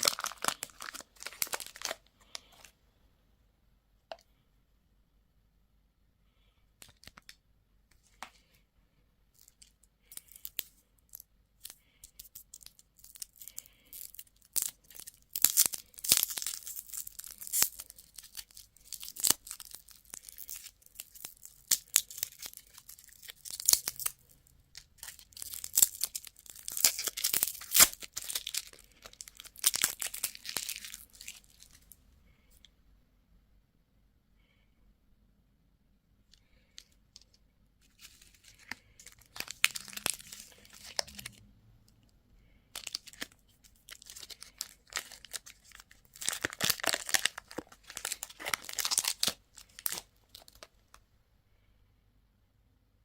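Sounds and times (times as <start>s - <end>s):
candy wrapper tearing and crinkling: 0.0s - 2.7s, 9.4s - 32.0s, 36.5s - 41.4s, 42.7s - 51.0s.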